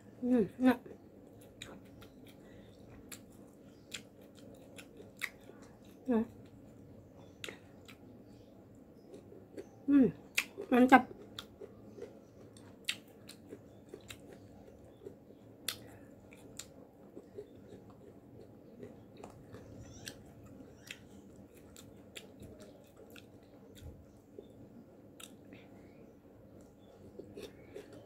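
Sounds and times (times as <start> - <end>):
wet chewing crunches: 9.0 - 24.5, 26.8 - 28.0.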